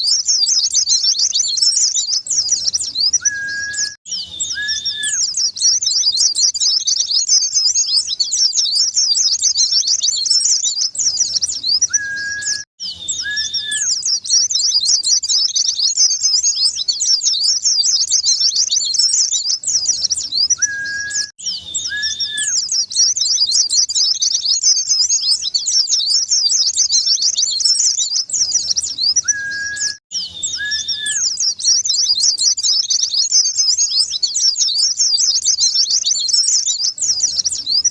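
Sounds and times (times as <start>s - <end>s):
bird twittering chirps: 0.0s - 37.9s
lower whistled notes: 2.4s - 5.4s, 11.0s - 14.1s, 19.0s - 22.7s, 29.2s - 31.4s.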